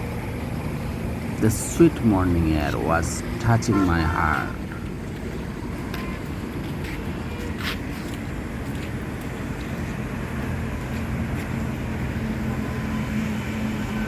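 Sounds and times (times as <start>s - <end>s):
low vehicle engine hum: 0.0s - 14.0s
road traffic rumble: 0.0s - 14.0s.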